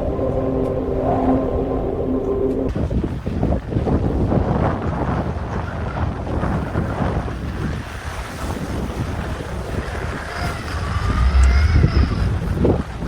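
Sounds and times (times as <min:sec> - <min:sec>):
faint high whine: 0:00.0 - 0:02.7
blizzard wind buffeting microphone: 0:00.0 - 0:13.0.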